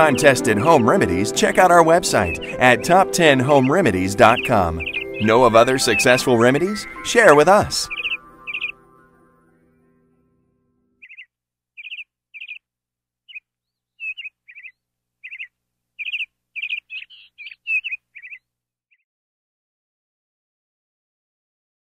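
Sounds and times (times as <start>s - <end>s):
bird chirping: 0.0s - 8.8s, 11.0s - 19.0s.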